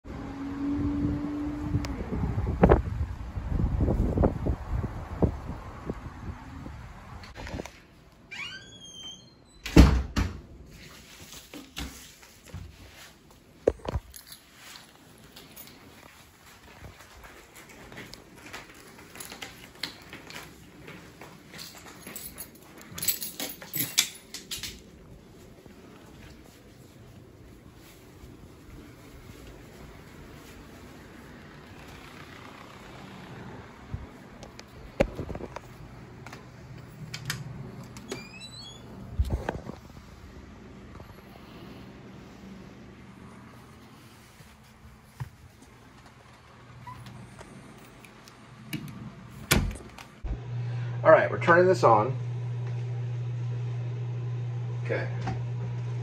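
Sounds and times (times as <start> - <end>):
door bumping shut: 49.4 - 50.0.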